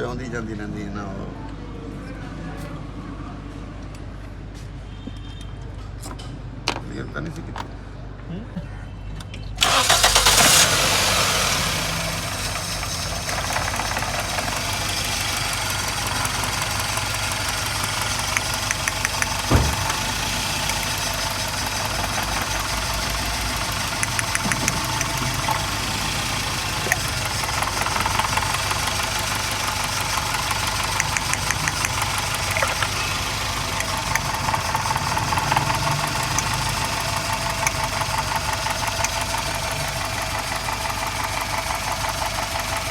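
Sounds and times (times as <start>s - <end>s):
petrol engine starting and idling: 9.3s - 42.9s
fast ticking valve train: 9.6s - 42.9s
sharp engine knock: 16.3s - 20.8s, 22.0s - 25.5s.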